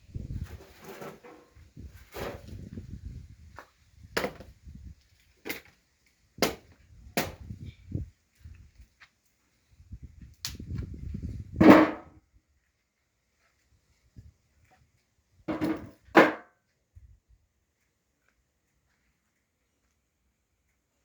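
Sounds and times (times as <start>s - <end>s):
firewood knocking together: 4.2s - 4.5s, 15.5s - 16.4s.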